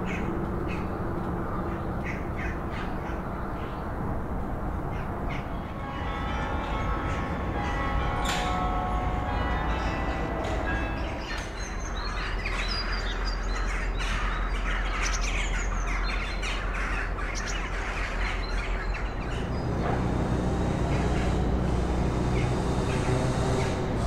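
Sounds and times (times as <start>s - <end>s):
small birds twittering: 10.8s - 19.8s
vehicle engine hum: 17.2s - 24.0s.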